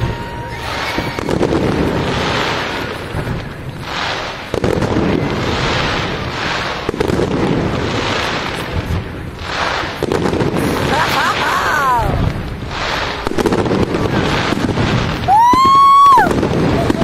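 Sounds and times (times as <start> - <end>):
firework bangs: 0.0 - 17.0
fireworks crackling and hissing: 0.0 - 17.0.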